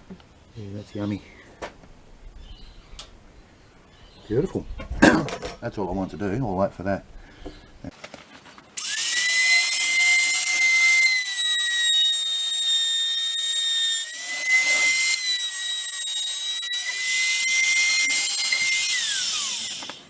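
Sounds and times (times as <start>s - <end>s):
router motor high-pitched whine: 8.8s - 20.0s.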